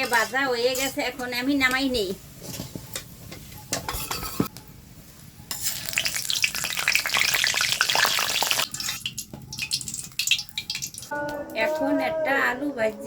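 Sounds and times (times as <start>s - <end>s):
hot oil sizzling: 5.5s - 11.1s.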